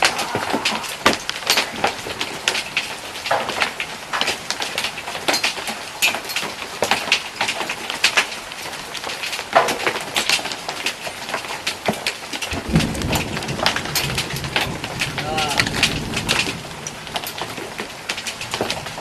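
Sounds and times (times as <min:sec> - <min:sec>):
low rumble: 0:00.0 - 0:02.2
rain hissing: 0:00.0 - 0:03.3, 0:12.7 - 0:19.0
hailstones pelting the ground: 0:01.2 - 0:19.0.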